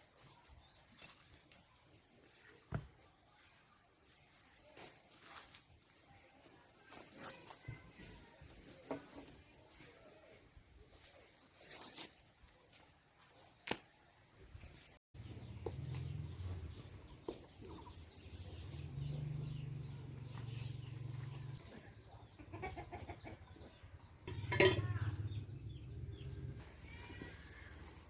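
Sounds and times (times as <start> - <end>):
chickens clucking: 15.2 - 26.6.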